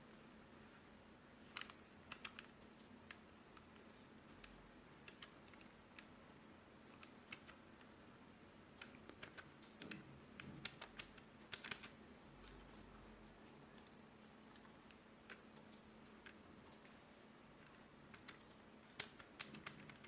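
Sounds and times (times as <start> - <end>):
keyboard keys clicking: 8.7 - 17.0, 17.6 - 20.0.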